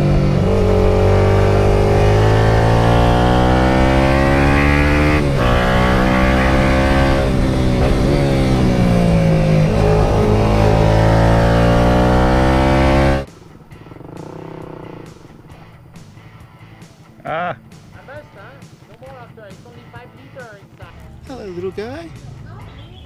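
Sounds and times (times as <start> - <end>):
motorcycle engine revving: 0.0 - 16.4.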